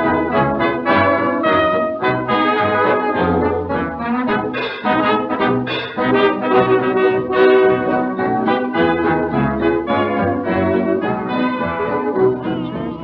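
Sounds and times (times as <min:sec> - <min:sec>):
dance orchestra with brass: 0:00.0 - 0:13.0.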